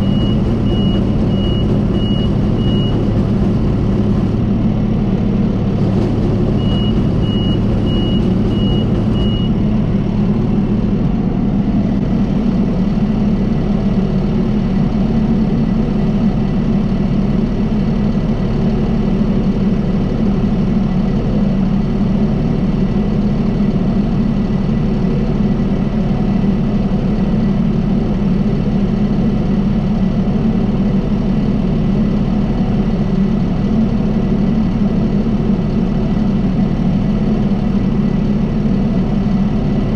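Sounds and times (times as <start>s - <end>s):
short electronic beeps: 0.0s - 4.3s, 5.8s - 9.6s
tractor diesel engine running: 0.0s - 39.9s.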